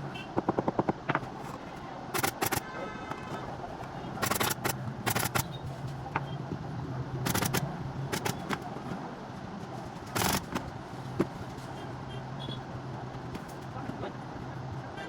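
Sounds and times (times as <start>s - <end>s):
sharp clicks and knocks: 0.2s - 1.4s, 2.1s - 3.3s, 4.2s - 6.4s, 7.2s - 8.7s, 10.1s - 11.4s.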